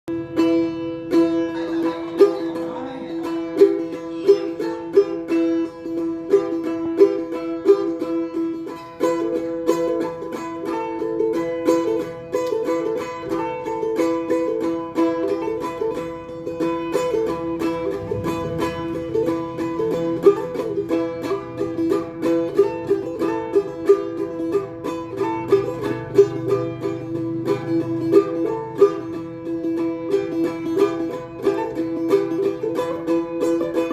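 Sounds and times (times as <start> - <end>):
plucked lute melody: 0.0 - 33.9
drone tones: 17.6 - 20.9.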